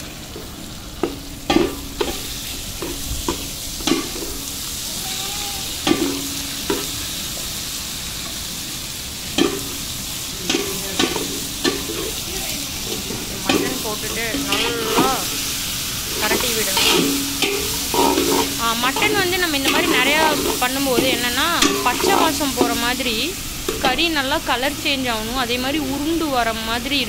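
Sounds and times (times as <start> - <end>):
food sizzling in oil: 0.0 - 27.0
metal spatula knocking on pot: 13.5 - 15.2, 16.3 - 22.8.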